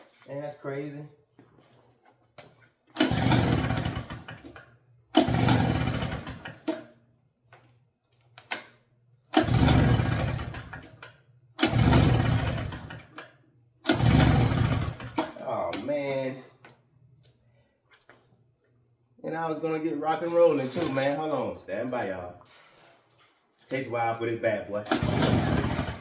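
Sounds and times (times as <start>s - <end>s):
leaf blower pull-start bursts: 3.0s - 4.5s, 5.2s - 6.8s, 9.3s - 10.8s, 11.6s - 13.0s, 13.9s - 15.4s, 24.9s - 26.0s.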